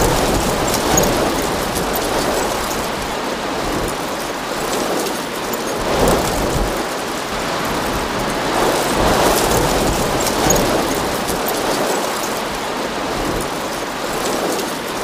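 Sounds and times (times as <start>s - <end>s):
heavy rain and floodwater rushing: 0.0s - 15.0s.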